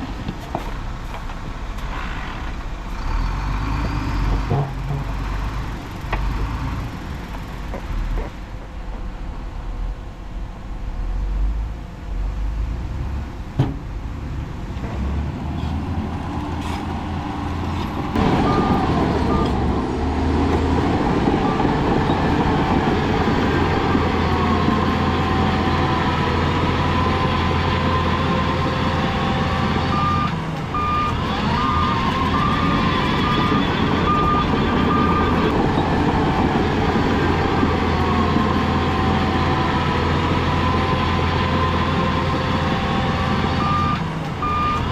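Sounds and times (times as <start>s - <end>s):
heavy diesel machinery running: 0.0s - 44.9s
reversing alarm beeps: 18.2s - 19.7s, 29.1s - 36.4s, 43.2s - 44.9s.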